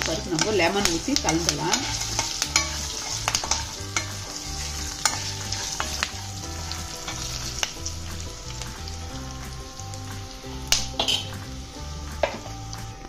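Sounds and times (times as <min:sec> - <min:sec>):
spoon scraping pan: 0:00.0 - 0:07.9
food sizzling in oil: 0:00.0 - 0:13.0.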